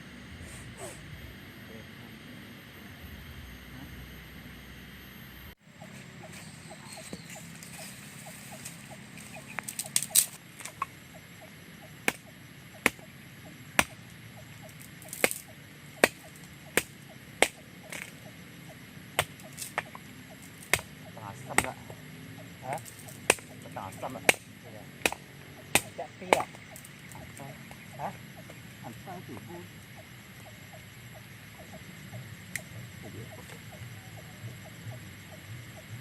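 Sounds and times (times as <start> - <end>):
sharp chopping strokes: 12.0 - 13.1, 13.8 - 14.0, 15.0 - 18.2, 19.2 - 20.0, 20.6 - 21.8, 22.7 - 23.6, 24.2 - 26.8.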